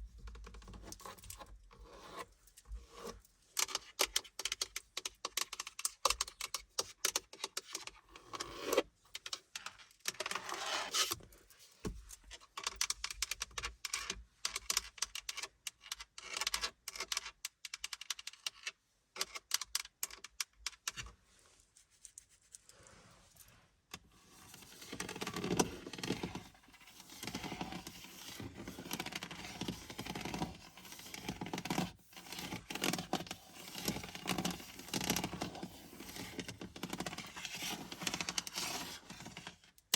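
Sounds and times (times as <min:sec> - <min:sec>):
scratching on surfaces: 0:21.0 - 0:39.6.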